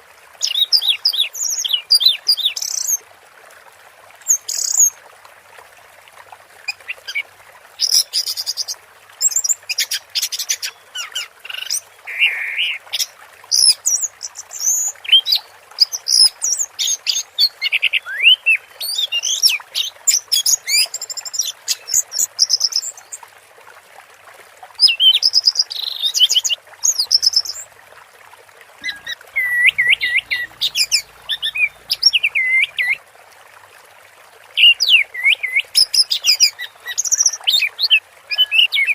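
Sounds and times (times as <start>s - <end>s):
running water hiss: 0.0s - 23.6s, 24.2s - 38.9s
thrush singing: 28.8s - 32.9s.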